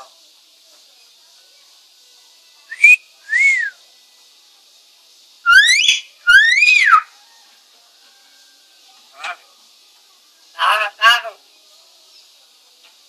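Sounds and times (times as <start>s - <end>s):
mynah bird whistling: 2.7s - 3.8s, 5.4s - 7.1s.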